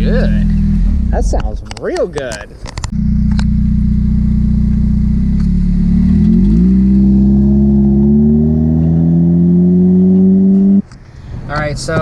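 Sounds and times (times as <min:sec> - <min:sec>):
loud engine exhaust: 0:02.9 - 0:10.8.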